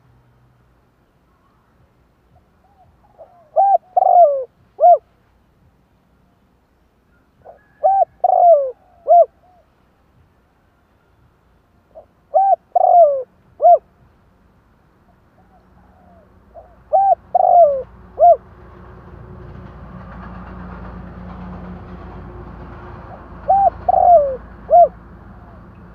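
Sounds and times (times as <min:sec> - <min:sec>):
background rumble and hiss: 0:00.0 - 0:25.9
dove cooing: 0:02.6 - 0:05.0, 0:07.4 - 0:09.6, 0:12.0 - 0:13.8, 0:15.4 - 0:18.4, 0:23.4 - 0:25.7.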